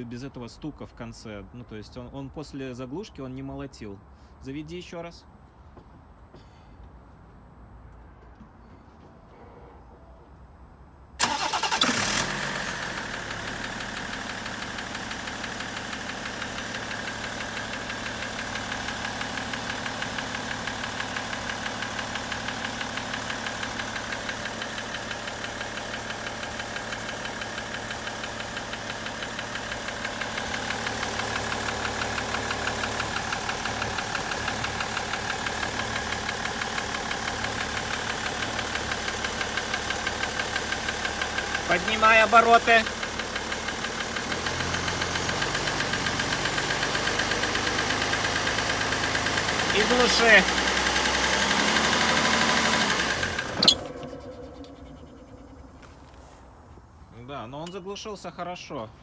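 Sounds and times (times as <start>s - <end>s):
engine idling with knocking: 11.2s - 56.2s
diesel engine starting: 11.2s - 58.2s.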